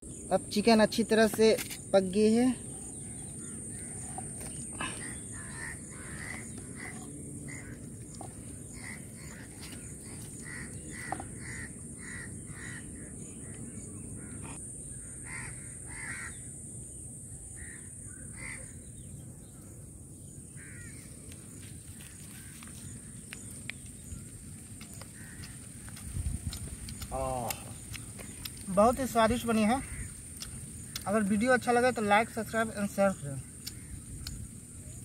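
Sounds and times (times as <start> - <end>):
bird calling: 2.2 - 16.5, 20.5 - 21.2, 26.9 - 31.4.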